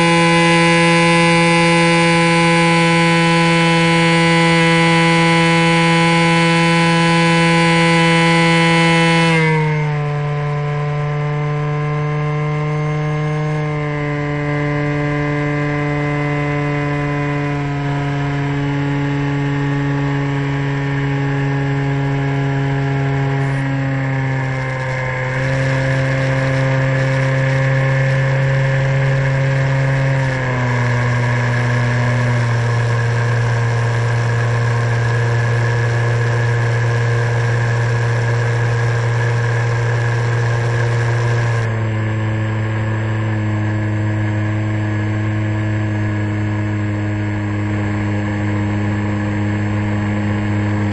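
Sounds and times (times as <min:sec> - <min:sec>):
electric motor and propeller whine: 0:00.0 - 0:50.9.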